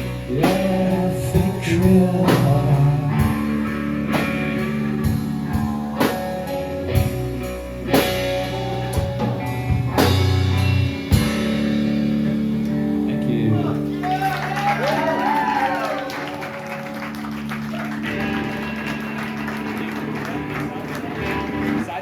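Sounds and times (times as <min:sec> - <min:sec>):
bass guitar long notes: 0:00.0 - 0:22.0
electric guitar: 0:00.0 - 0:22.0.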